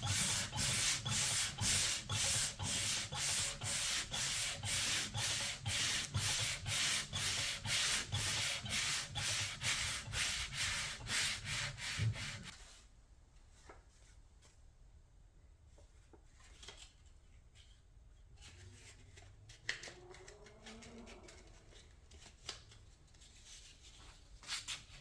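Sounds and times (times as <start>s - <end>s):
sandpaper rubbing back and forth: 0.0s - 12.5s.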